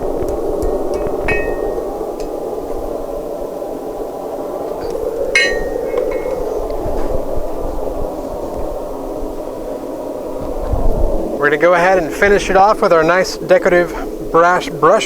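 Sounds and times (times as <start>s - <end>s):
steady rushing noise: 0.0s - 15.0s
faint metal ticks: 0.2s - 2.4s, 4.8s - 6.8s
hammer clinks on steel: 5.4s - 6.4s.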